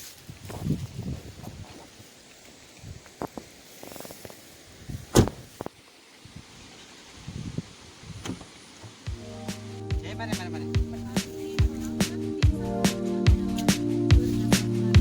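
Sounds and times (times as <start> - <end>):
car door thud: 5.1 - 5.4.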